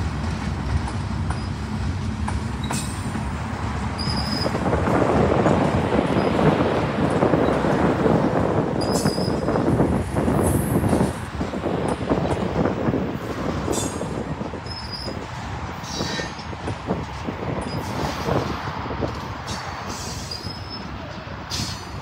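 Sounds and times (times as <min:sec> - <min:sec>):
freight train rumbling over rails: 0:00.0 - 0:22.0
high wheel squeal: 0:04.0 - 0:04.6, 0:06.1 - 0:06.5, 0:08.8 - 0:09.6, 0:13.7 - 0:16.6, 0:17.6 - 0:18.4, 0:19.4 - 0:22.0.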